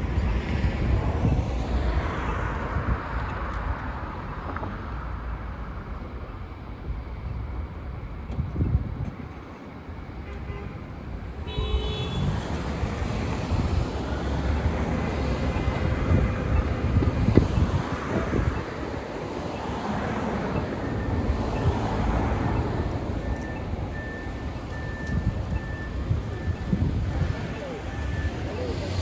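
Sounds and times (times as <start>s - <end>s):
road traffic passing: 0.0s - 29.0s
vehicle horn toot: 11.4s - 12.4s.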